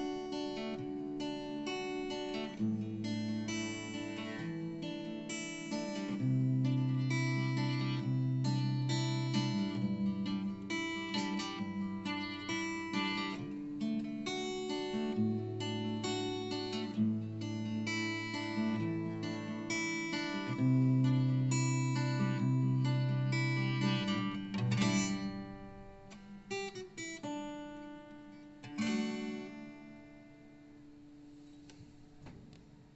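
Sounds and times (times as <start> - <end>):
acoustic guitar instrumental: 0.0 - 32.9.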